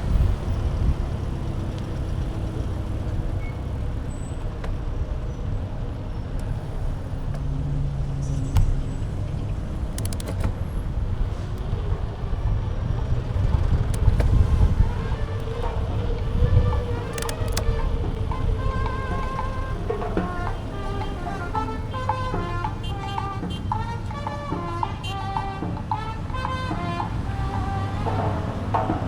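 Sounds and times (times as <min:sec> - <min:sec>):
wind and road noise: 0:00.0 - 0:29.0
sharp clicks: 0:09.8 - 0:10.6, 0:16.6 - 0:20.6.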